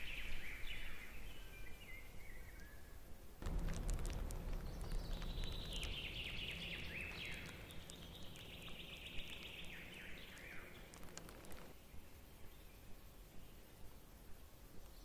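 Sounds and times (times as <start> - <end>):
low rumble of wind: 0.0 - 15.0
songbird singing: 0.0 - 15.0
water drops into puddle: 3.4 - 11.7.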